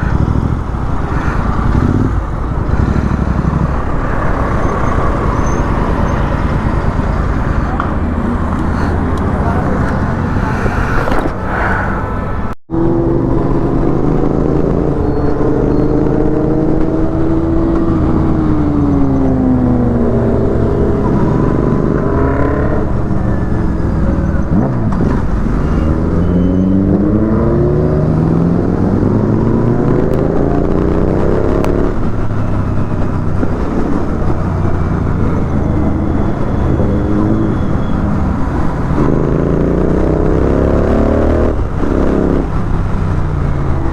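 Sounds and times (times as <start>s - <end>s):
motorcycle engine accelerating: 0.0s - 43.9s
road and wind noise: 0.0s - 43.9s.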